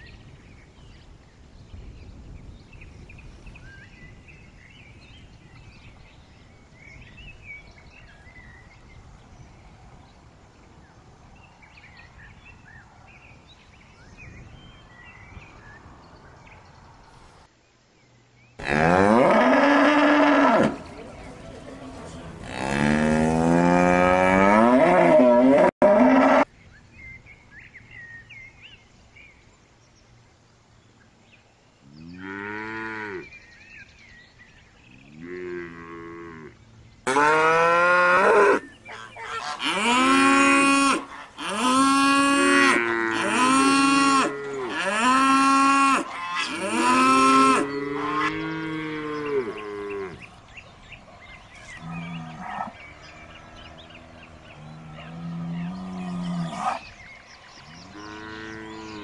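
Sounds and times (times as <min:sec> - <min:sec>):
cattle mooing: 0:22.4 - 0:26.4, 0:51.8 - 0:52.8.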